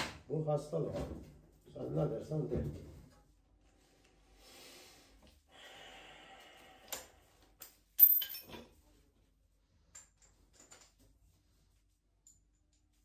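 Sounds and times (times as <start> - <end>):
sharp metallic clink: 8.0 - 8.6
soft rustle and scrape: 10.9 - 12.2.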